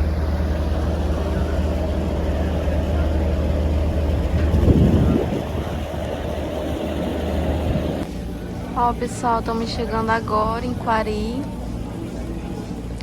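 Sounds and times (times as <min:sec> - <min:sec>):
rush of noise: 0:00.0 - 0:10.4
ferry engine droning: 0:00.0 - 0:13.0.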